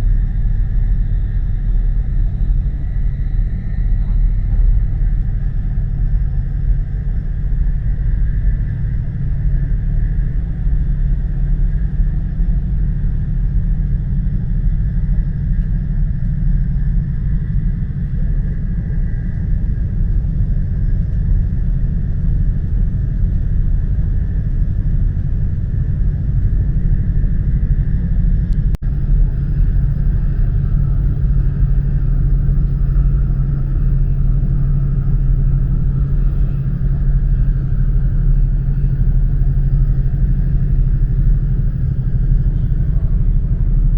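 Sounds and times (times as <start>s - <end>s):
low hum: 0.0s - 43.9s
train rumbling from inside cabin: 0.0s - 43.9s.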